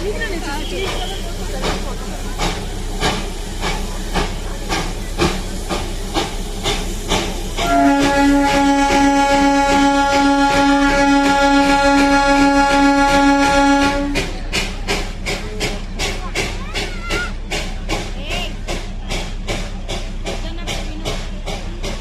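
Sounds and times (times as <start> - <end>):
steam locomotive chuffing: 0.0 - 22.0
train whistle: 7.6 - 14.2.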